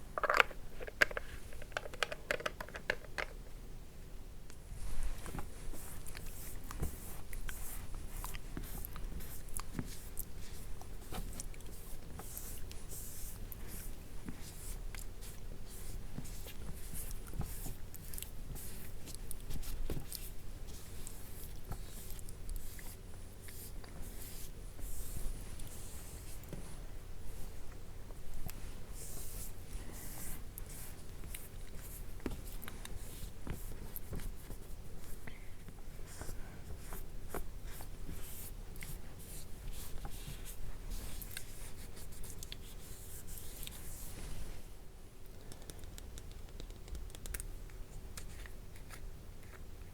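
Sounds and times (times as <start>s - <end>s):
low steady hum: 0.0s - 49.9s
small clicks and taps: 0.2s - 3.4s, 45.3s - 48.3s.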